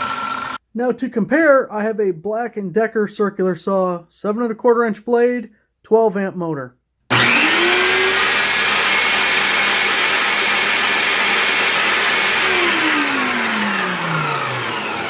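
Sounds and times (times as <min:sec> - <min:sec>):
circular saw whine: 0:00.0 - 0:00.6, 0:07.1 - 0:15.0.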